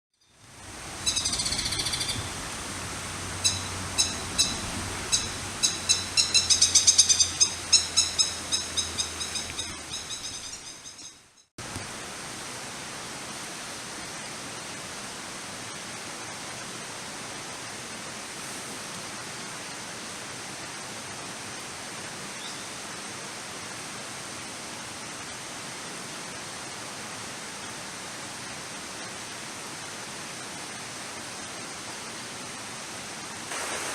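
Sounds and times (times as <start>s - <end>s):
rushing water: 0.4s - 10.9s, 11.6s - 33.9s
kingfisher harsh calls: 3.4s - 11.0s.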